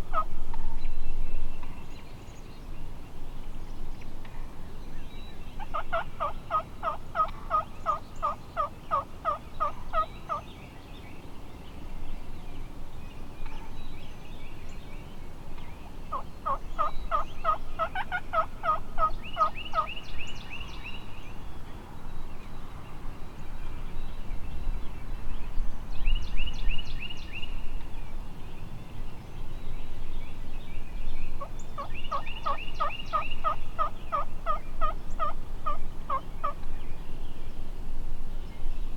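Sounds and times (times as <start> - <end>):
turkey yelping: 5.7 - 10.4, 16.1 - 19.9, 33.1 - 36.6.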